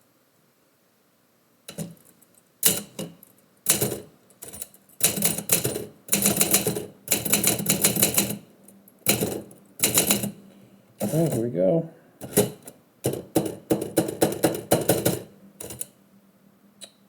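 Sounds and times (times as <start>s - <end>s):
typewriter typing: 1.7s - 8.5s, 9.1s - 10.4s, 11.0s - 11.4s, 12.2s - 15.9s.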